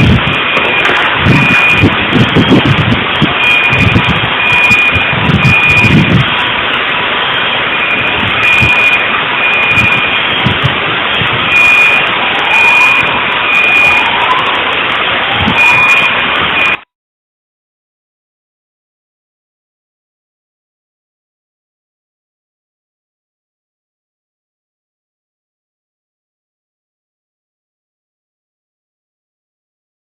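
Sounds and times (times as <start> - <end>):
electronic alarm beeping: 0.0 - 14.8, 15.5 - 16.9
loud steady noise: 0.0 - 16.9.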